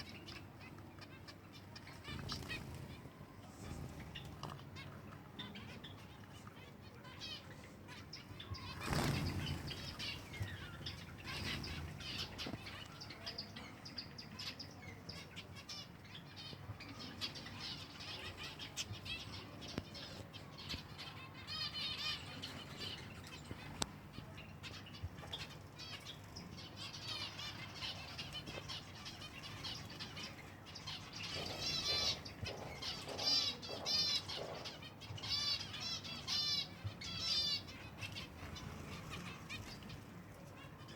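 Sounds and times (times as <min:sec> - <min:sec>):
birds fluttering wings: 0:02.0 - 0:04.6, 0:08.6 - 0:12.7.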